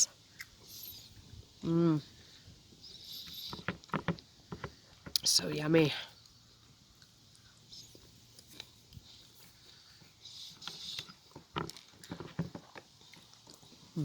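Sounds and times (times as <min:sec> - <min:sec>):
person chewing: 0:06.2 - 0:14.0.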